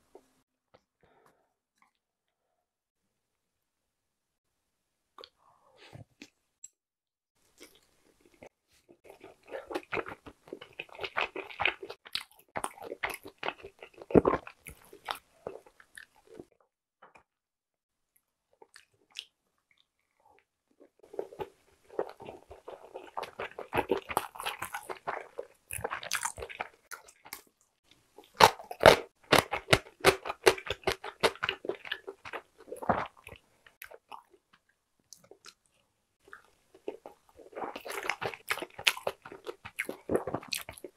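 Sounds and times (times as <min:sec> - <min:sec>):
chewing with mouth clicks: 0:18.6 - 0:27.5, 0:28.2 - 0:40.9.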